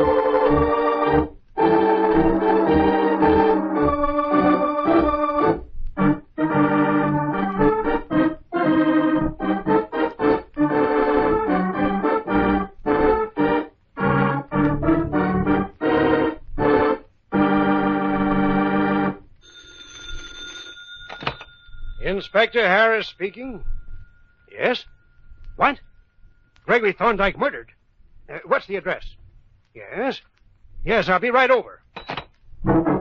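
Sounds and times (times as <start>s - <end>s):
dramatic organ music: 0.0s - 19.3s, 32.6s - 33.0s.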